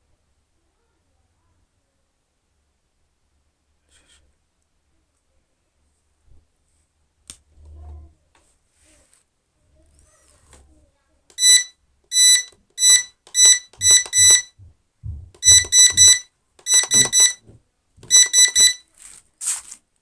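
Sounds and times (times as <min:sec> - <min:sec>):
short high-pitched beeps: 0:11.4 - 0:14.6, 0:15.4 - 0:17.4, 0:18.1 - 0:18.8
low thumps: 0:14.6 - 0:16.2.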